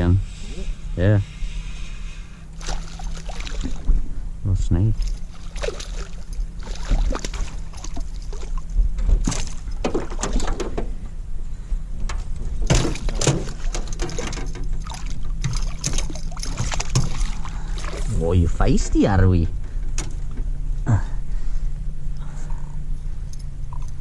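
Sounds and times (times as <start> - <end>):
steady low hum: 0.0 - 24.0
water splashing: 2.6 - 4.0, 4.9 - 10.3, 12.7 - 18.4.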